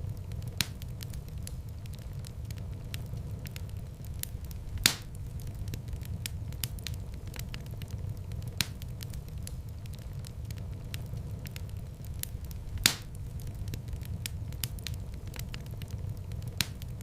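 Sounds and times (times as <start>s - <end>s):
low rumble of flames: 0.0s - 17.0s
wood fire crackling: 0.0s - 17.0s
loud pop of burning wood: 4.2s - 7.6s, 12.2s - 15.7s.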